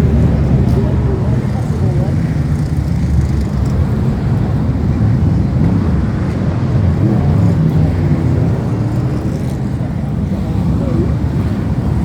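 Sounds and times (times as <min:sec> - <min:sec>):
racing car engines: 0:00.0 - 0:12.0.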